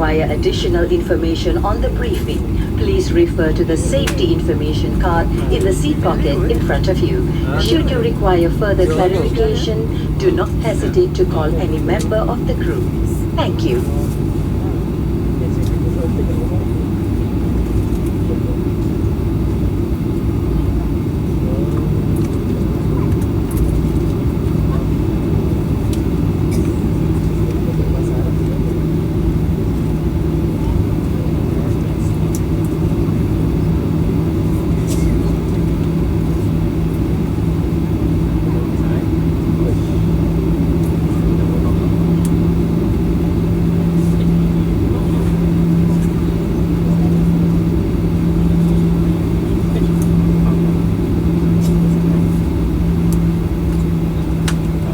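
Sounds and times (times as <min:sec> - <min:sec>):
jet engines rumbling in cabin: 0:00.0 - 0:54.9.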